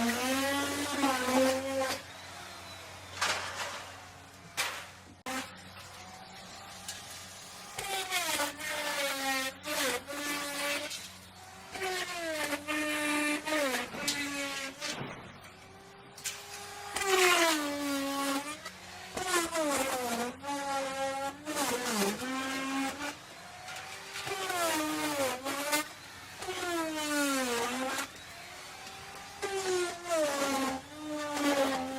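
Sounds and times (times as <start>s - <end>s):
electric router cutting wood: 0.0s - 31.9s.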